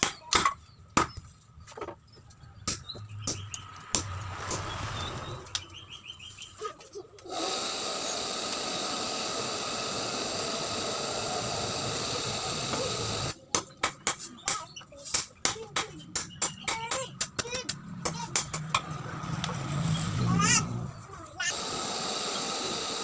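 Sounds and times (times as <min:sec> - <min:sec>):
sharp metallic knocks: 0:00.0 - 0:01.3, 0:02.6 - 0:04.8, 0:13.4 - 0:18.9
power tool whining: 0:07.3 - 0:13.3, 0:21.4 - 0:23.0.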